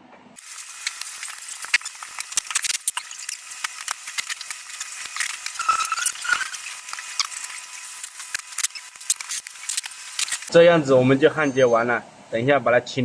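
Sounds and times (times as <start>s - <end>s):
soldering clicks and crackles: 0.4s - 10.5s.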